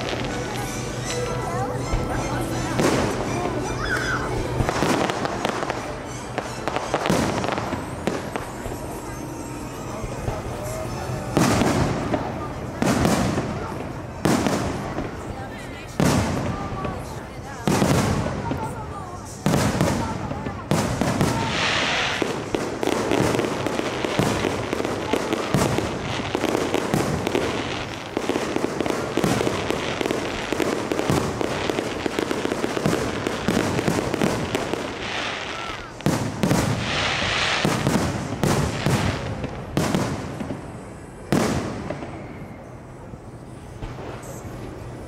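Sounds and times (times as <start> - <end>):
fireworks bangs: 0.0 - 45.0
fireworks crackling: 0.0 - 45.0.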